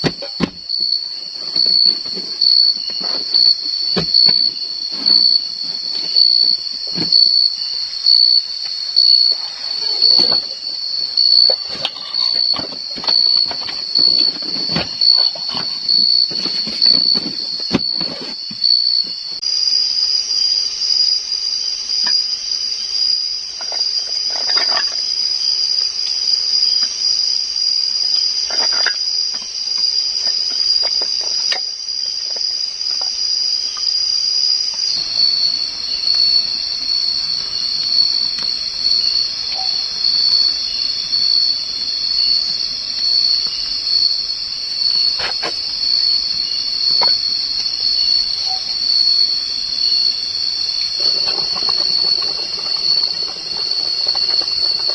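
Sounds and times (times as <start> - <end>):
insects chirring: 0.0 - 54.9.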